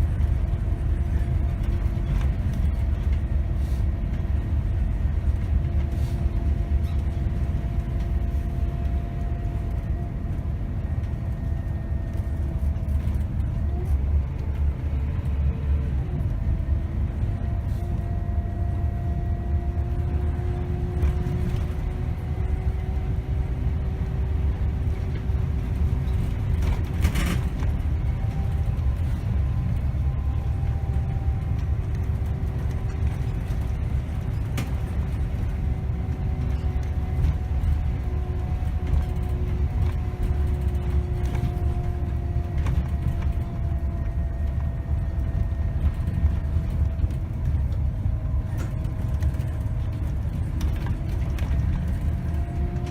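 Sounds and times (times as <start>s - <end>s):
bus engine and road rumble: 0.0s - 52.9s
drivetrain whine: 0.0s - 52.9s.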